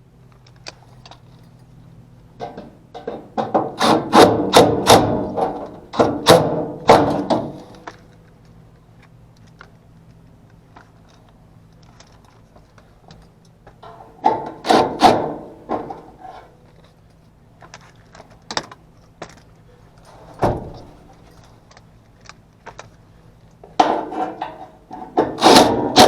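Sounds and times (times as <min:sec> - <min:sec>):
low steady hum: 0:00.0 - 0:26.0
tools and parts knocking: 0:02.4 - 0:08.0, 0:13.8 - 0:16.4.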